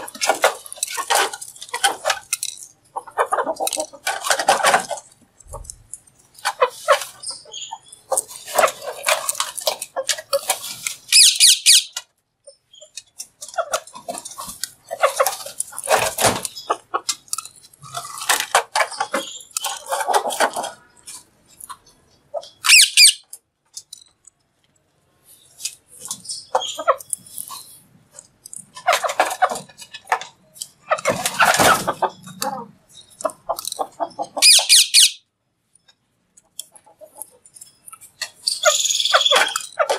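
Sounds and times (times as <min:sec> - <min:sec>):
parrot chattering and squawking: 0:11.1 - 0:12.0, 0:22.3 - 0:23.3, 0:33.3 - 0:35.2, 0:38.5 - 0:39.9
parrot shrill screeches: 0:11.1 - 0:12.0, 0:22.6 - 0:23.2, 0:34.4 - 0:35.2.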